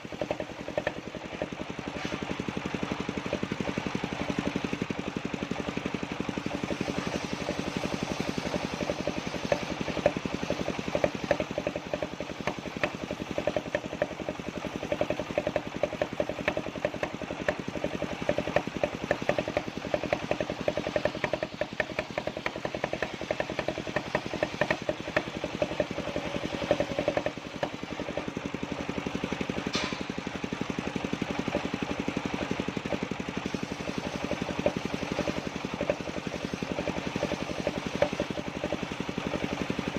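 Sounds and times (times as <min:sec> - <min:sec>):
sawmill engine chugging: 0:00.0 - 0:39.9.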